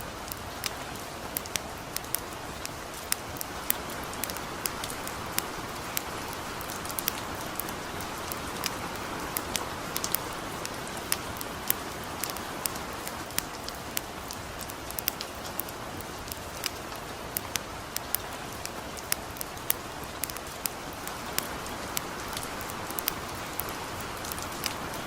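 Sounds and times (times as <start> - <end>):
campfire crackling: 0.0 - 25.0
gentle rain falling: 0.0 - 25.0.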